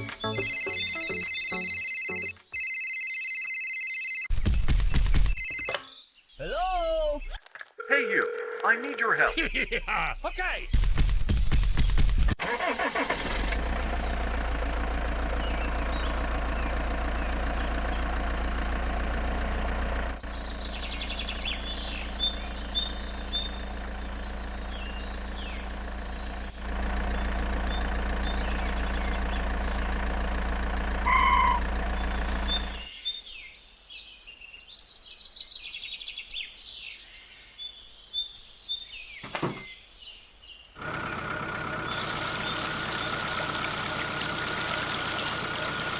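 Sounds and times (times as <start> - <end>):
birds chirping: 4.3 - 12.1, 13.8 - 45.9
small motor humming: 40.8 - 45.9.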